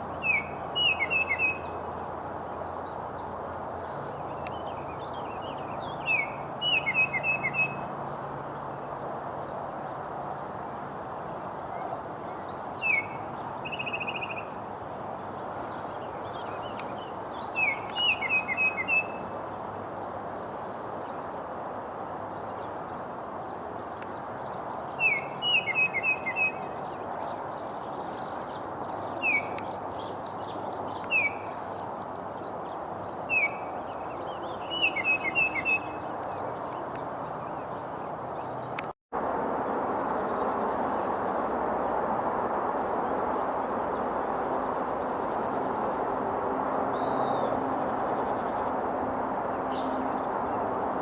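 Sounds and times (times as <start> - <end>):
songbird chirping: 0.0 - 10.1, 11.2 - 21.3, 22.2 - 39.0
outdoor background hiss: 0.0 - 51.0.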